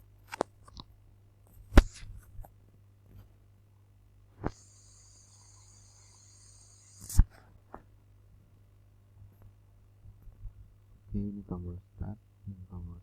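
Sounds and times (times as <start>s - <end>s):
low electrical hum: 0.0s - 13.0s
high hiss: 4.4s - 7.4s.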